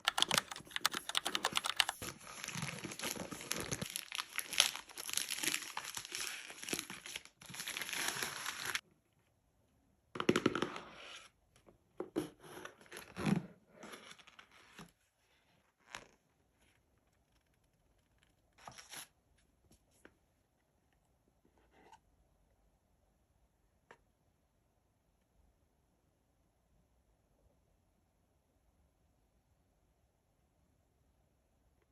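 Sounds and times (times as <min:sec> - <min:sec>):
wrapping paper crinkling and tearing: 0:01.5 - 0:08.8.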